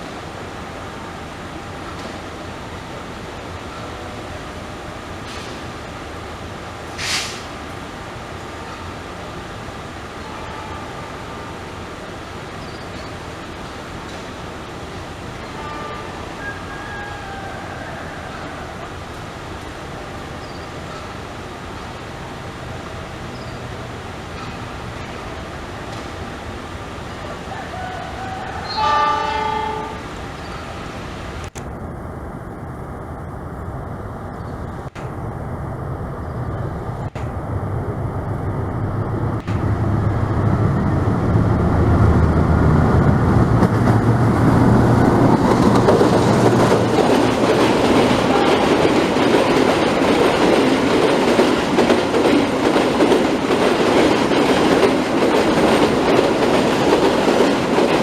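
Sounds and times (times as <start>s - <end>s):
train engine rumble: 0.0s - 58.0s
train wheels rushing on rails: 0.0s - 58.0s
train horn: 10.2s - 11.7s, 15.4s - 19.0s, 27.4s - 30.9s, 48.0s - 49.2s.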